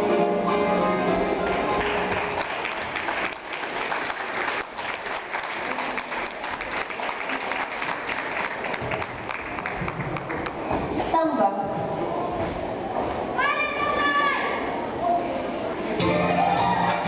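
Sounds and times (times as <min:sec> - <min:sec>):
audience applauding: 0:01.7 - 0:10.7
dance music: 0:16.0 - 0:17.0.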